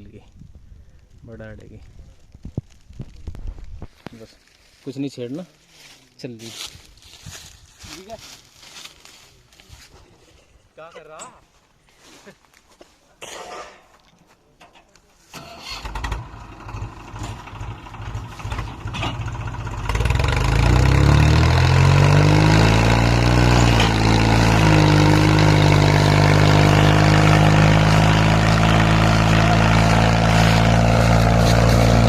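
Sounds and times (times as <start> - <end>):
tractor diesel engine revving: 15.4 - 32.0.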